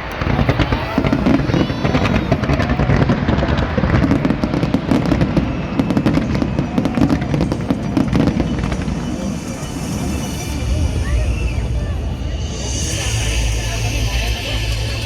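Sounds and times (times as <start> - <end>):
fireworks popping and crackling: 0.0 - 15.0
low rumble: 0.0 - 15.0.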